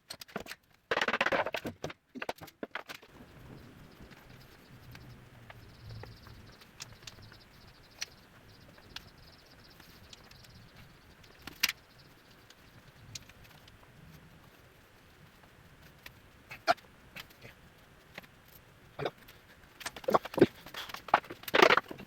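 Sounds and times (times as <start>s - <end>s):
tools and plywood parts clicking: 0.0s - 3.1s, 18.1s - 22.0s
low hum: 3.1s - 21.2s.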